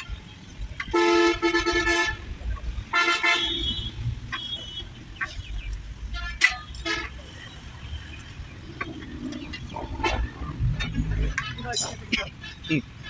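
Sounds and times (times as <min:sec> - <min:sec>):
low traffic rumble: 0:00.0 - 0:13.0
vehicle horn honking: 0:00.9 - 0:02.3, 0:02.9 - 0:04.8.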